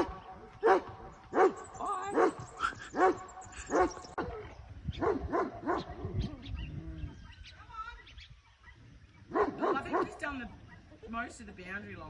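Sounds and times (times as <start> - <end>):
dog barking: 0.0 - 6.0, 8.6 - 11.0.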